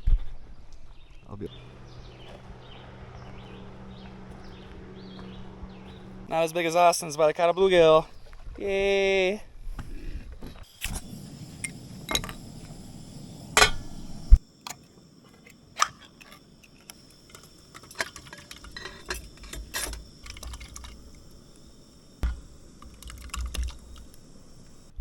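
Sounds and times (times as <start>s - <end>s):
water dripping: 20.2s - 24.8s
gear clicking and knocking: 22.2s - 24.3s.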